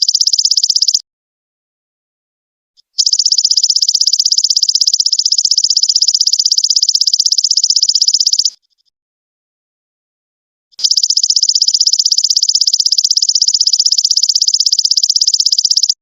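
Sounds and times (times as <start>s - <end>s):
locust stridulating trill: 0.0s - 1.0s, 2.9s - 8.8s, 10.8s - 16.0s.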